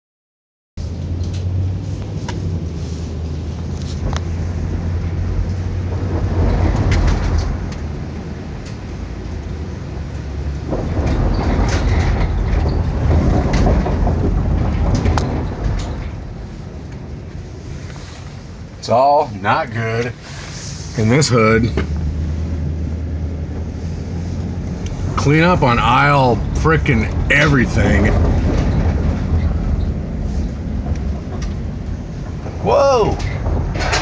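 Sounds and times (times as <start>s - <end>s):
car engine hum and road noise: 0.8s - 34.0s
sharp clicks and crackles: 8.6s - 9.5s, 30.8s - 32.6s.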